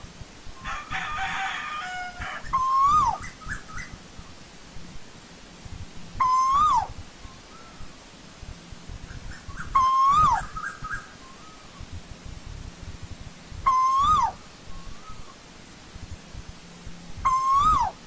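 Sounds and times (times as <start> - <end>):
bird calling loudly: 0.8 - 4.0, 6.2 - 7.9, 9.1 - 11.8, 13.7 - 15.4, 17.2 - 18.0
faint soft bird notes: 6.1 - 18.0.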